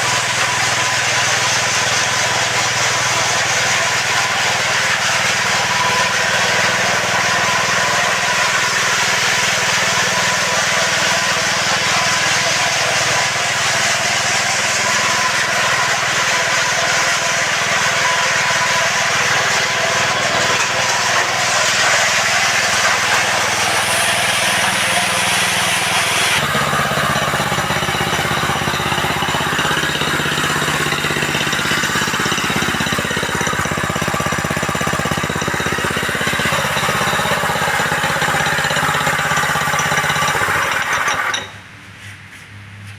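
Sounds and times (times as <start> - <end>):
four-stroke engine running: 0.0 - 41.5.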